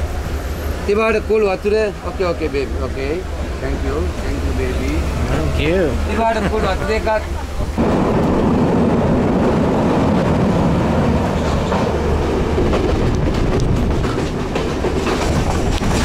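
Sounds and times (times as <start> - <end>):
train rumbling: 0.0 - 16.0
wheels clattering over rail joints: 7.2 - 16.0.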